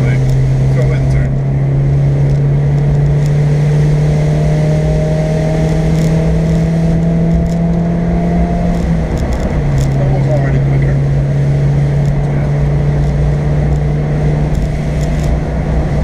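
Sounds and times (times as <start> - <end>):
car engine droning: 0.0 - 16.0.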